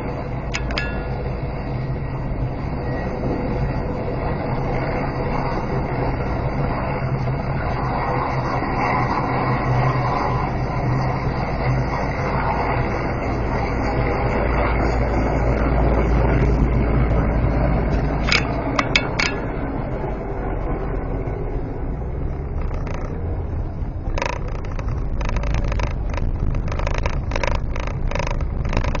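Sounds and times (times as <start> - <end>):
car road and engine rumble: 0.0 - 29.0
scraping and rattling knocks: 0.5 - 1.3, 18.2 - 19.6, 24.1 - 29.0
sharp clicks: 0.5 - 1.3, 18.2 - 19.6, 22.6 - 23.2, 24.1 - 29.0.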